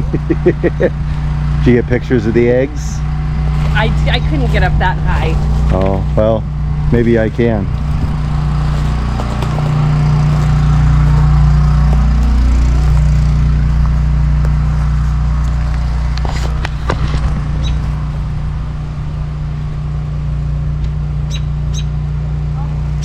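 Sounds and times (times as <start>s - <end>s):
low mechanical hum: 0.0s - 23.0s
bird chirping: 17.6s - 17.8s, 21.2s - 22.0s.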